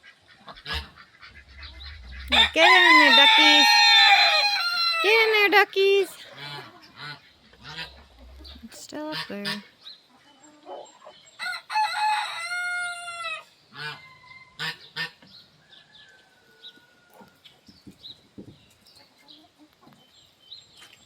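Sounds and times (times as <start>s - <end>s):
chickens calling: 0.0s - 21.0s
rooster crowing: 2.3s - 5.1s, 11.4s - 14.7s.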